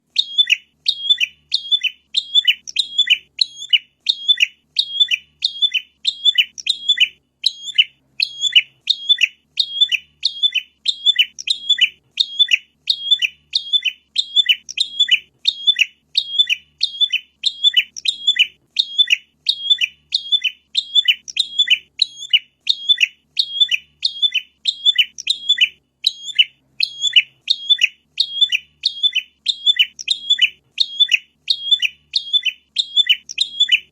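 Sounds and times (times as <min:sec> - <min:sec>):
bird chirping high notes: 0:00.2 - 0:33.9.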